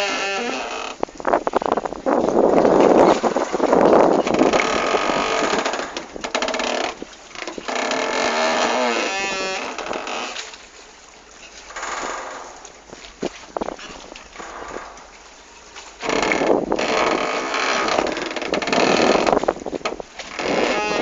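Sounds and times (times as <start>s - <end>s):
water noise: 0.0s - 21.0s
rushing wind: 1.0s - 6.2s, 16.3s - 17.2s, 17.8s - 21.0s.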